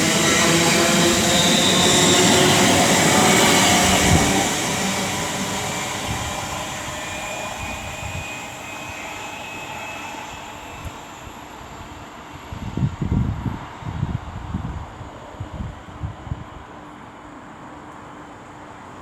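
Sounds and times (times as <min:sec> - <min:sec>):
electric train pulling away: 0:00.0 - 0:14.8.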